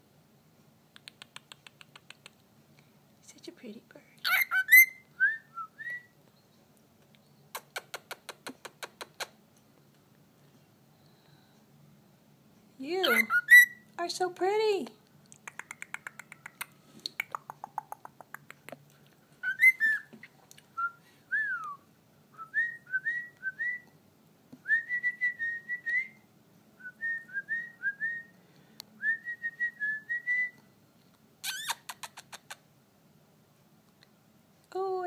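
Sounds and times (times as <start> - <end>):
cockatiel whistling: 4.3 - 6.1, 13.0 - 13.8, 19.4 - 20.1.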